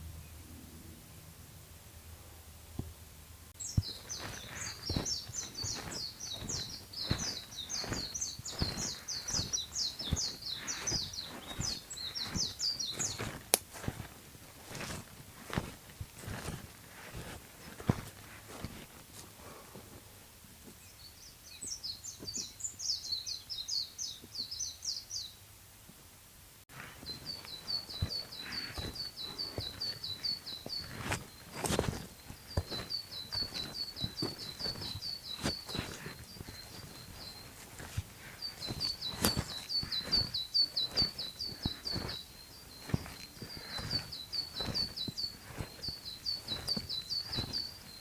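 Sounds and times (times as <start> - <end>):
songbirds chirping: 0.0 - 25.5, 26.7 - 48.0
footsteps on a trail: 3.6 - 20.0, 26.7 - 48.0.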